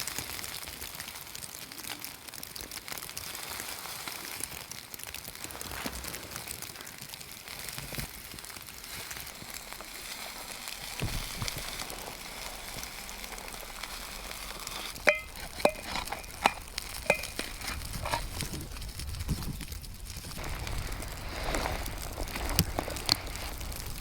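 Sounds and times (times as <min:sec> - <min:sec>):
food sizzling on a grill: 0:00.0 - 0:24.0
metal utensil clinking on cookware: 0:14.6 - 0:18.6.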